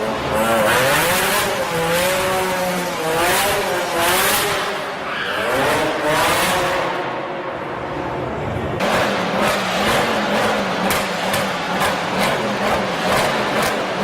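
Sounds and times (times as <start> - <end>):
car tyres squealing: 4.8 - 6.2
car engine running: 8.7 - 14.0.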